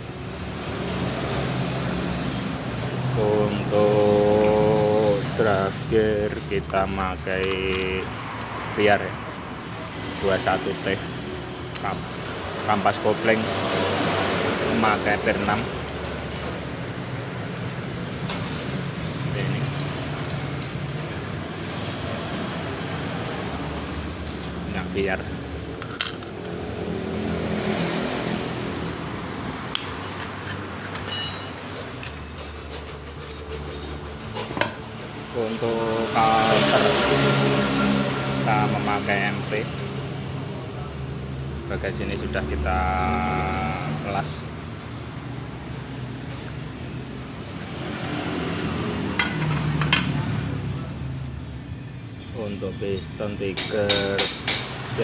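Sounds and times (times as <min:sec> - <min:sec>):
low workshop hum: 0:00.0 - 0:55.0
metal parts clicking: 0:07.4 - 0:08.6, 0:19.5 - 0:20.9, 0:25.7 - 0:26.6, 0:29.7 - 0:32.2
sharp metallic clinks: 0:19.2 - 0:21.0, 0:29.7 - 0:32.2
bright ringing metal clink: 0:31.0 - 0:31.8.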